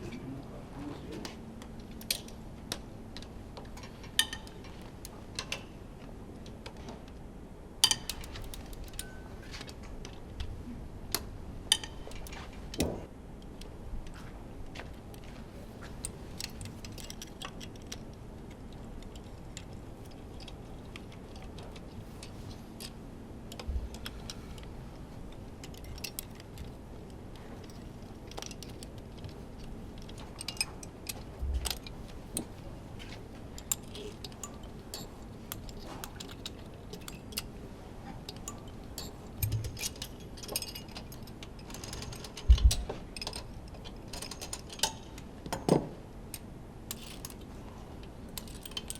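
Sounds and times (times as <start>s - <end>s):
metal tools clicking and clinking: 3.7s - 5.7s, 7.8s - 9.8s, 11.7s - 12.8s, 27.6s - 45.8s, 46.9s - 47.4s, 48.3s - 48.9s.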